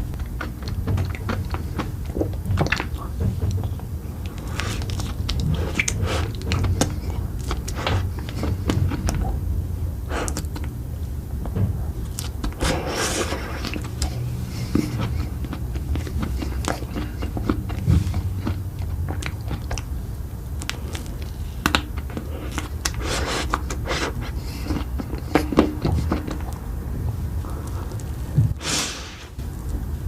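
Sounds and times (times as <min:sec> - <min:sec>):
crunchy biting and chewing: 0:00.0 - 0:09.4, 0:12.0 - 0:26.7
steady low hum: 0:00.0 - 0:30.0.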